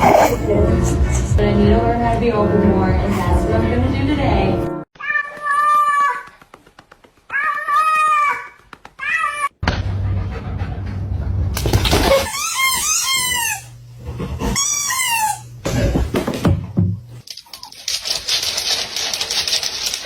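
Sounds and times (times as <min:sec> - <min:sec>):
animal crying: 0:12.0 - 0:13.8, 0:14.4 - 0:15.6.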